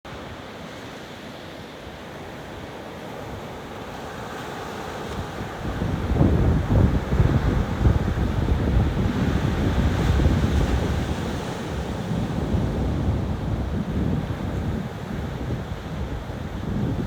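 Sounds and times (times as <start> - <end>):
ocean surf on beach: 0.1 - 17.0
wind buffeting microphone: 5.0 - 17.0.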